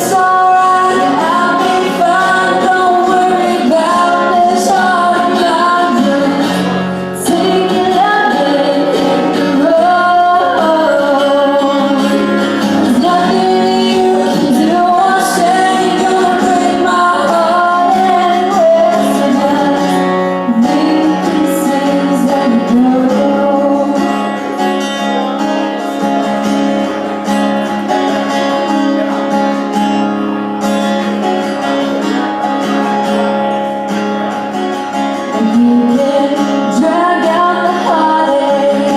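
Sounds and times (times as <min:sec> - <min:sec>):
woman singing: 0:00.0 - 0:24.6, 0:35.2 - 0:38.9
acoustic guitar strumming: 0:00.0 - 0:38.9.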